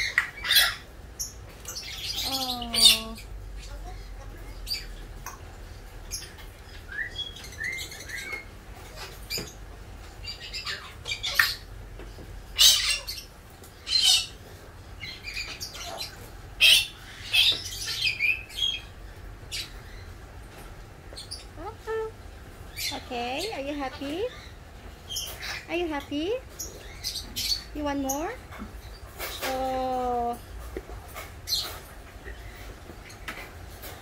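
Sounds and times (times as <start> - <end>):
birds squawking: 0.0 - 5.0, 6.1 - 11.8, 12.5 - 20.2, 21.1 - 30.4.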